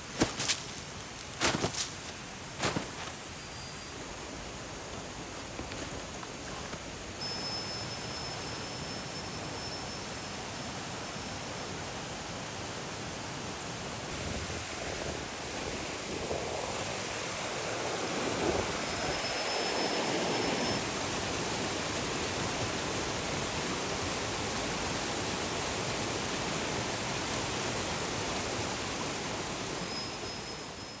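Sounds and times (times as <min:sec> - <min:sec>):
river water rushing: 0:07.8 - 0:31.0.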